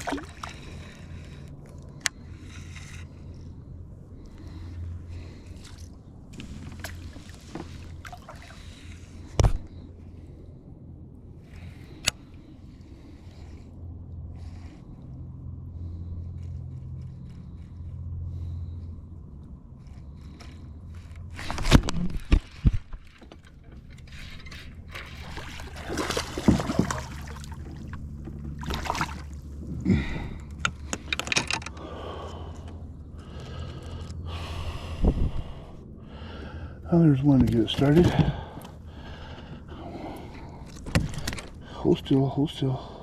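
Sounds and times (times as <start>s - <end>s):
low steady hum: 0.0s - 43.0s
knocks and scrapes against hull: 19.9s - 29.3s.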